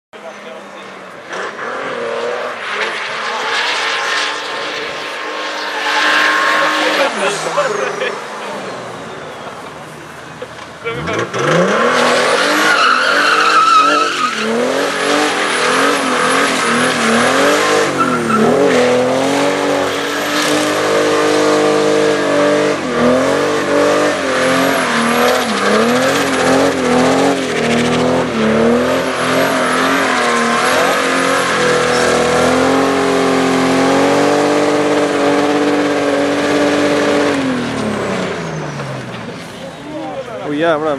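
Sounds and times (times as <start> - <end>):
tyre squealing: 2.6 - 22.1, 22.9 - 40.6
diesel engine revving hard: 10.9 - 39.7.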